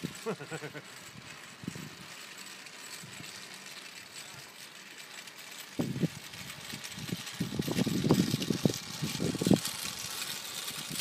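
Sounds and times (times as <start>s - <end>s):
wind buffeting microphone: 1.1s - 2.2s, 5.7s - 11.0s.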